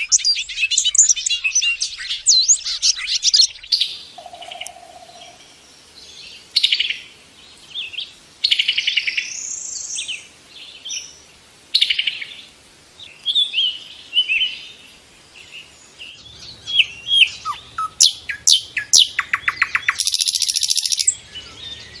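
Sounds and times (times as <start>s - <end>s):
lovebird chirping and trilling: 0.0s - 5.4s, 16.2s - 21.2s.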